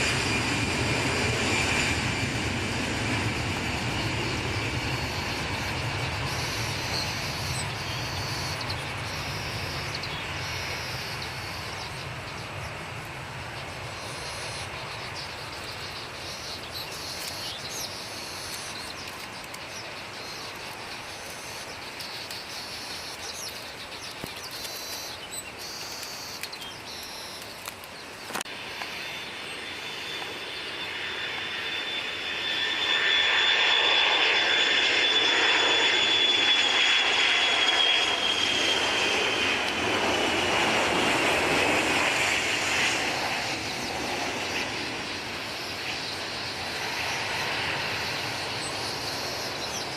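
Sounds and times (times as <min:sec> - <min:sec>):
jet engine whine: 0:00.0 - 0:49.9
jet rumble: 0:00.0 - 0:49.9.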